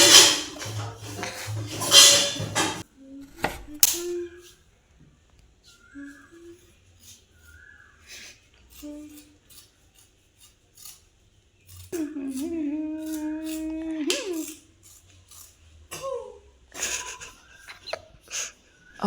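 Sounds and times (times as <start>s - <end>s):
kitchen utensils clicking: 0.0s - 2.8s
person humming: 4.0s - 4.6s, 8.8s - 9.3s, 12.0s - 14.6s.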